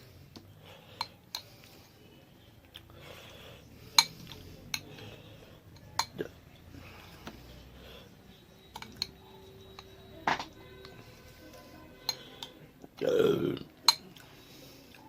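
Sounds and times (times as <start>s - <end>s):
plates and utensils clinking: 8.7s - 10.6s.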